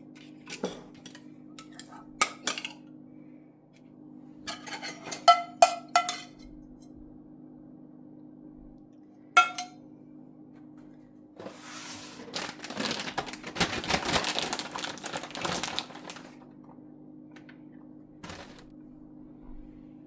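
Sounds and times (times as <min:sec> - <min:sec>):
low steady hum: 0:00.0 - 0:20.0
dishes clattering and scraping: 0:00.2 - 0:02.8, 0:04.4 - 0:06.6, 0:09.4 - 0:09.8, 0:18.2 - 0:18.7.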